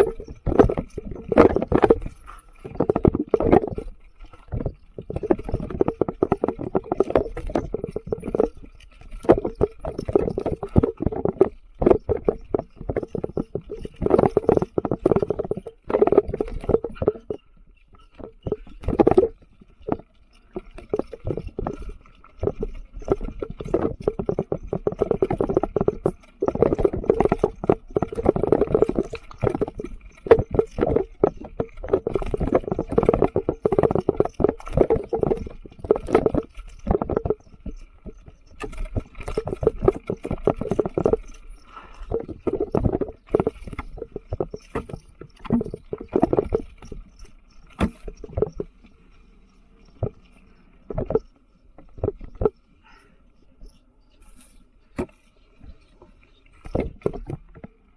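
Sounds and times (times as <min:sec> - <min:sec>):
mountain bike rattling on dirt trail: 0:00.0 - 0:57.9.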